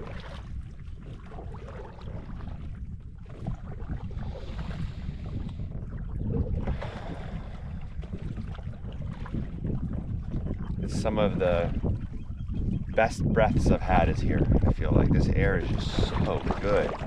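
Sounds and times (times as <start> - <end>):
paddle strokes rushing water: 0.0 - 17.0
wind rumbling on microphone: 0.0 - 17.0.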